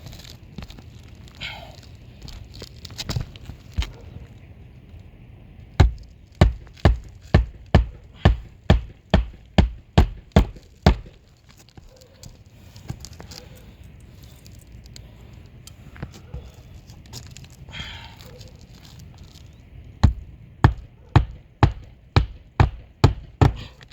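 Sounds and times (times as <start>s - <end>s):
hammer striking nails: 5.8s - 11.2s, 20.0s - 23.8s.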